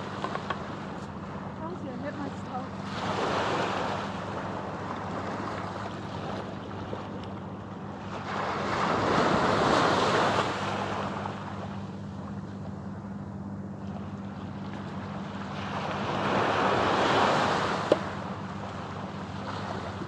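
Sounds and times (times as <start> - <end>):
waves washing on shore: 0.0 - 6.9, 7.9 - 11.8, 14.5 - 20.0.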